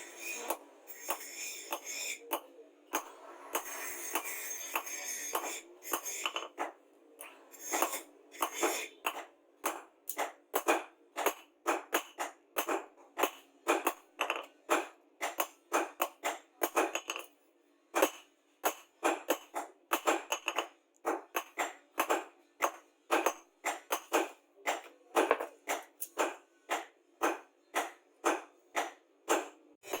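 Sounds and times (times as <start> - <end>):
hand tool strokes on steel: 0.0 - 2.3, 3.4 - 6.3.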